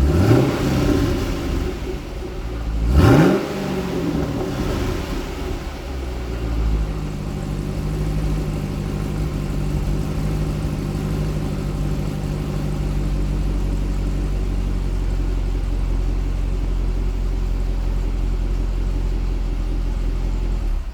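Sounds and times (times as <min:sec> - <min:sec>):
car engine idling: 0:00.0 - 0:20.9.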